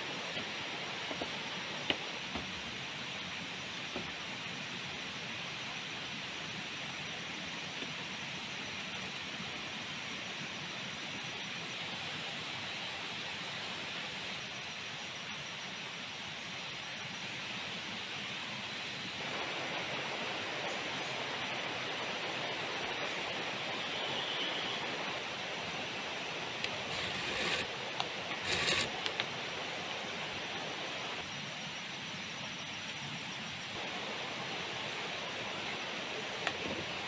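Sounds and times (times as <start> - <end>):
thin high steady tone: 19.3 - 31.2.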